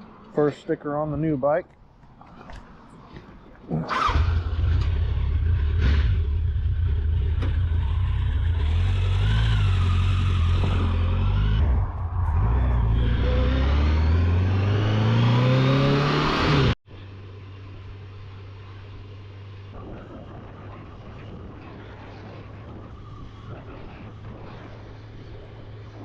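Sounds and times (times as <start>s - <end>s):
motorcycle engine accelerating: 3.8s - 16.8s.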